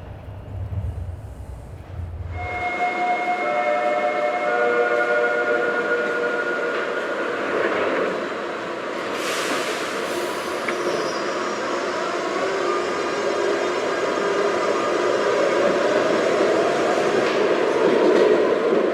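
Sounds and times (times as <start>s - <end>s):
whining tones: 0.0s - 2.8s
subway train rail rumble: 0.0s - 18.9s.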